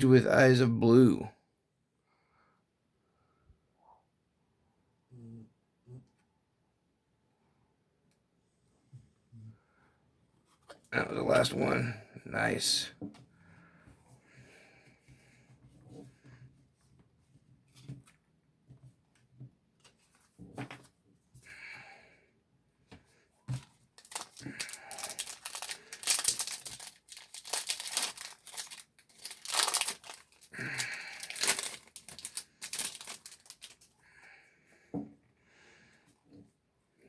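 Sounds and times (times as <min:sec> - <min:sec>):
foil wrapper tearing and crinkling: 0:24.0 - 0:33.9.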